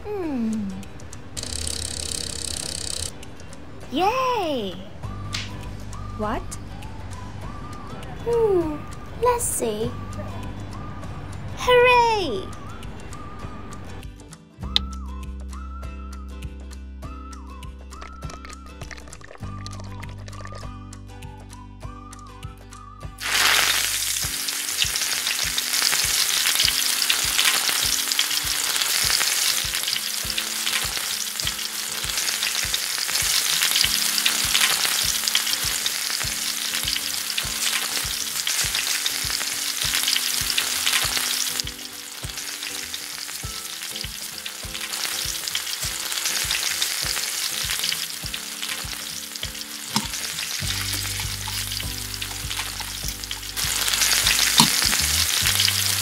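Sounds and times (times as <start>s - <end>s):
food sizzling in a pan: 23.2s - 56.0s.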